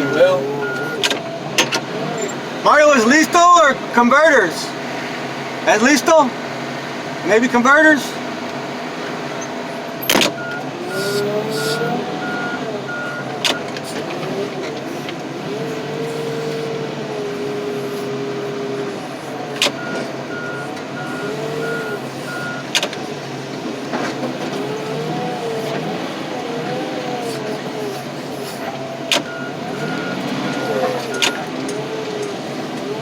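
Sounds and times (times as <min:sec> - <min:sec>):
backup alarm beeping: 0:00.0 - 0:01.3, 0:10.3 - 0:13.7, 0:19.7 - 0:22.7, 0:29.2 - 0:31.5
engine and hydraulics: 0:00.0 - 0:33.0.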